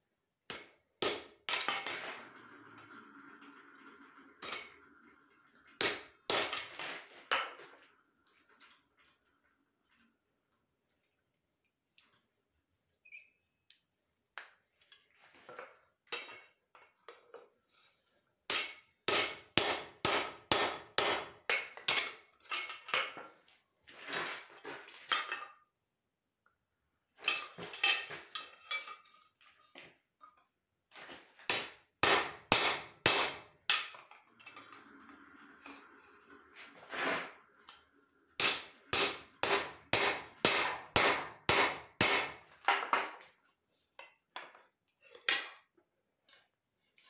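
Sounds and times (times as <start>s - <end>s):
hammer striking steel on anvil: 5.8s - 6.6s, 18.5s - 21.4s, 31.5s - 33.8s, 38.4s - 42.4s.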